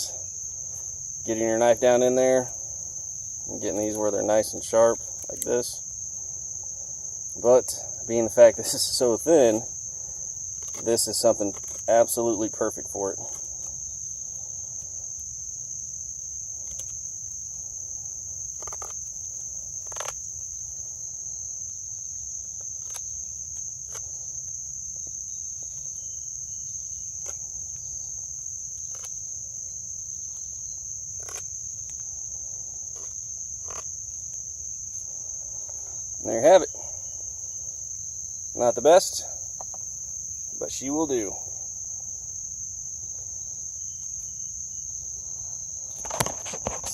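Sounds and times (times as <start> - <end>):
insect chorus drone: 0.0 - 46.9
knife carving wood: 10.5 - 12.5, 16.5 - 26.2, 26.9 - 35.9.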